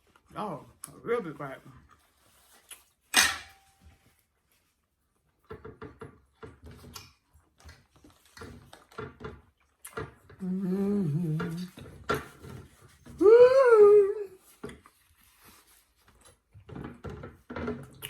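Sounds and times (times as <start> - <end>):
cutlery on a plate: 3.1 - 3.8
high vocal sound: 10.4 - 11.7, 13.2 - 14.4
person humming mmm: 10.4 - 11.8, 13.2 - 14.4.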